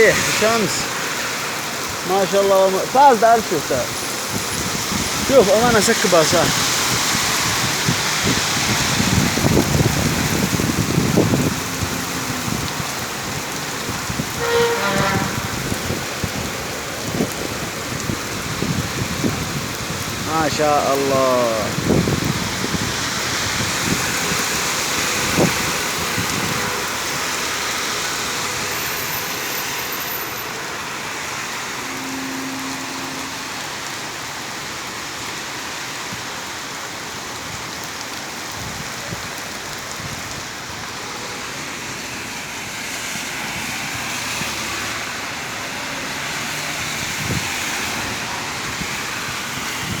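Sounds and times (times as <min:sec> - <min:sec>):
heavy rain pouring: 0:00.0 - 0:50.0.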